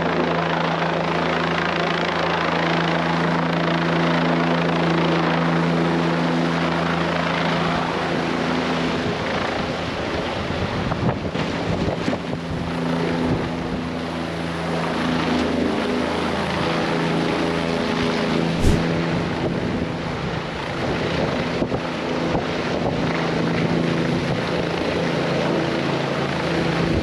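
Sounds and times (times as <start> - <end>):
gusty wind noise: 18.6 - 18.9.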